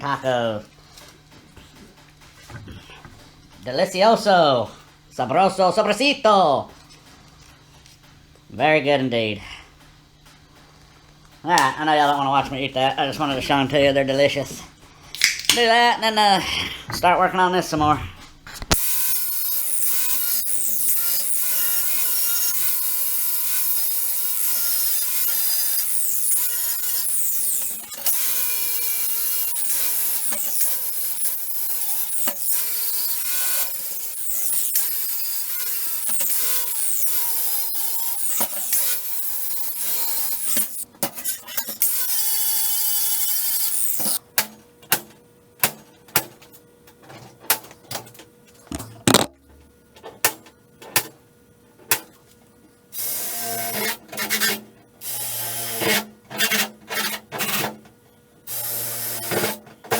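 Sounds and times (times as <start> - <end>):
power tool whining on steel: 18.7 - 44.2.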